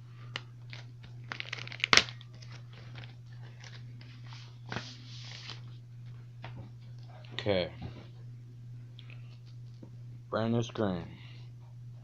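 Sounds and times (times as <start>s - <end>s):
steady low hum: 0.0s - 12.0s
plastic packaging crinkling: 0.6s - 3.8s.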